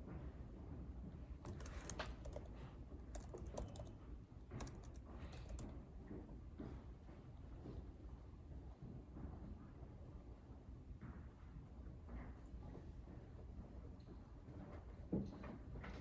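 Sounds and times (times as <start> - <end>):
keyboard key clicks: 1.5 - 4.0, 4.6 - 5.8.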